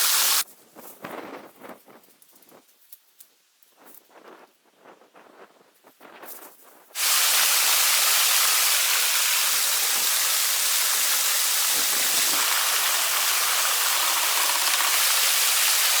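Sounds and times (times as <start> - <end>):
waterfall rushing: 0.0 - 0.4, 7.0 - 16.0.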